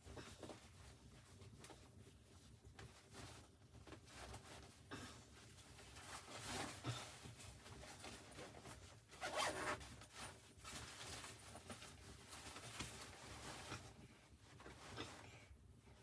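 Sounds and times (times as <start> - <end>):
zipper pulled: 9.2 - 9.8.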